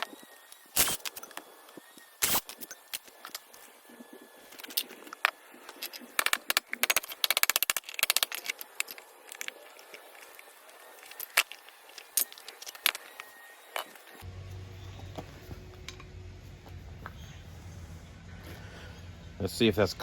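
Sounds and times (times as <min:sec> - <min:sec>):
low steady hum: 0:14.0 - 0:20.0.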